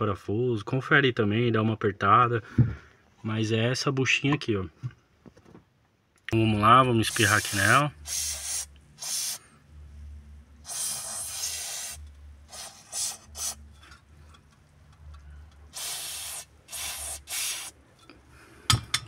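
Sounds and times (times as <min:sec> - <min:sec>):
aerosol can spraying: 0:07.0 - 0:09.4, 0:10.6 - 0:13.7, 0:15.7 - 0:17.8.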